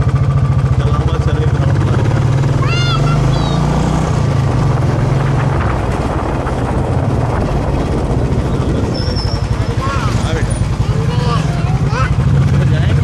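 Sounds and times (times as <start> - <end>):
motorcycle engine running: 0.0 - 13.0
wind noise on microphone: 4.0 - 10.4.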